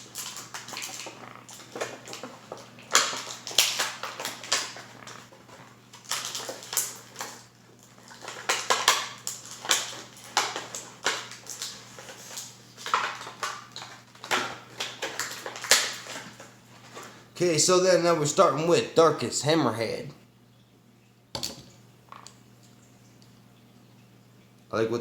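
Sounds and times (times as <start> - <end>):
plastic packaging crinkling: 0.0 - 17.3.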